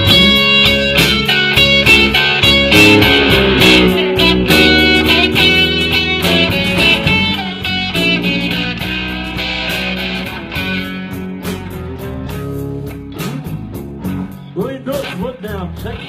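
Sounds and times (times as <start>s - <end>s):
bass: 0.0s - 16.0s
electric guitar: 0.0s - 16.0s
cymbal or drum strokes: 2.6s - 6.1s.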